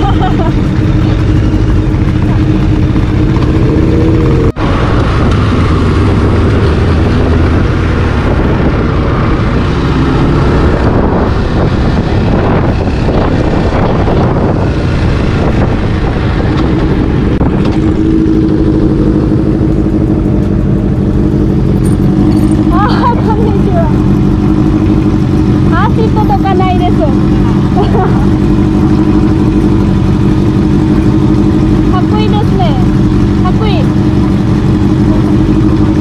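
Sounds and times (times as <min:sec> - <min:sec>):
loud low rumble: 0:00.0 - 0:36.0
motorcycle engine running: 0:00.0 - 0:36.0.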